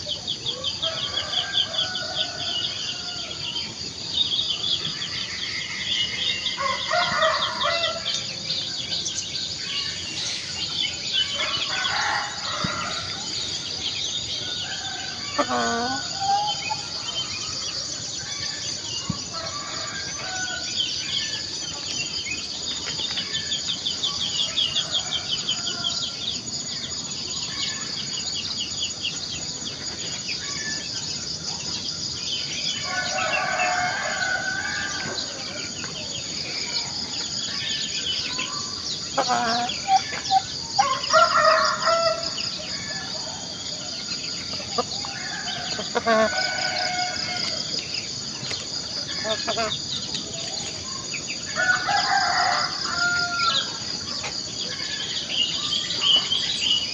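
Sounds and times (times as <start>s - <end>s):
small birds chirping: 0.0s - 56.9s
roosters crowing: 0.4s - 3.8s, 6.3s - 8.9s, 11.0s - 21.5s, 24.4s - 26.7s, 32.6s - 37.2s, 38.0s - 49.9s, 50.5s - 56.8s
chickens clucking: 15.4s - 17.0s, 38.8s - 41.1s, 44.2s - 50.8s.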